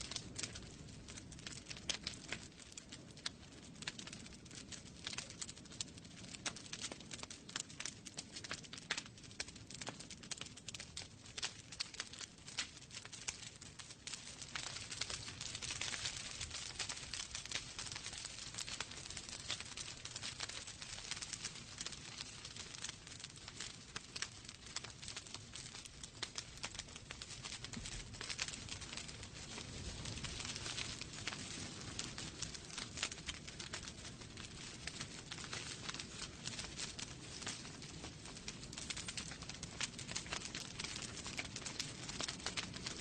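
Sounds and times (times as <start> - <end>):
logs crackling in fire: 0.0 - 43.0
low rumble of flames: 0.0 - 43.0.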